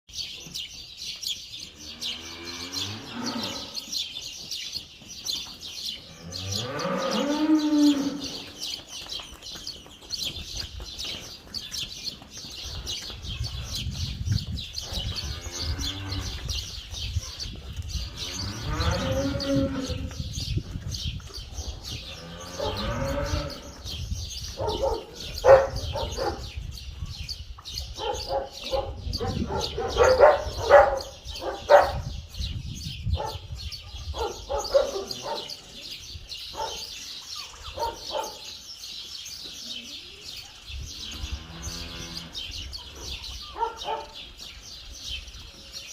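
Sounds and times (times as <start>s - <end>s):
cow mooing: 1.9s - 3.8s, 6.1s - 8.5s, 18.2s - 20.2s, 22.2s - 23.7s
dog barking: 24.6s - 26.5s, 28.0s - 32.1s, 33.2s - 33.5s, 34.1s - 35.5s, 36.5s - 36.9s, 37.7s - 38.5s, 43.5s - 44.2s.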